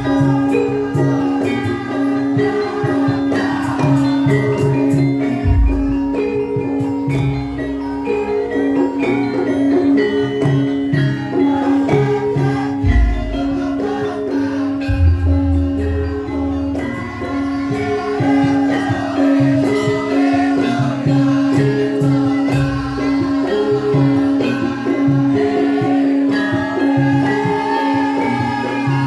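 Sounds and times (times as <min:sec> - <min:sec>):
metallophones playing melody: 0:00.0 - 0:29.0
person singing: 0:00.0 - 0:29.0
deep drum strokes: 0:14.8 - 0:17.6
held low note: 0:14.8 - 0:19.1.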